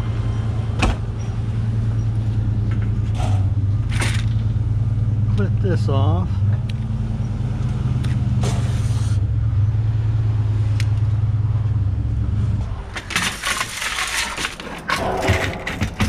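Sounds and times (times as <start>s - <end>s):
vehicle engine humming: 0.0s - 16.0s
scrap metal clattering and scraping: 12.7s - 16.0s.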